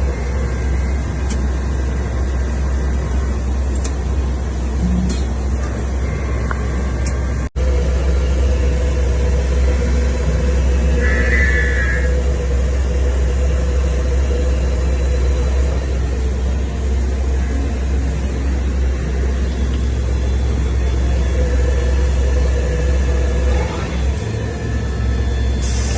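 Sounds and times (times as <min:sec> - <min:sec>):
high machine whine: 0:00.0 - 0:25.9
machine low hum: 0:00.0 - 0:25.9
steady mid-pitched tone: 0:05.8 - 0:18.8.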